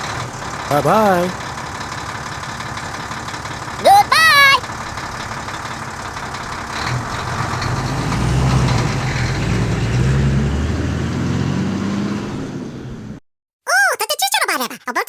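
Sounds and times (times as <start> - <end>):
tractor engine droning: 4.6 - 13.2.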